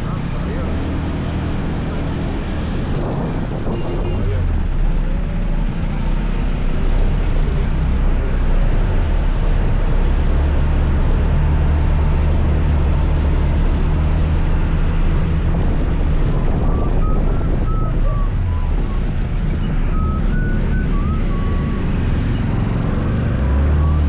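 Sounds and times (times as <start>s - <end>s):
road and wind noise: 0.0s - 24.0s
scooter engine humming: 12.8s - 24.0s.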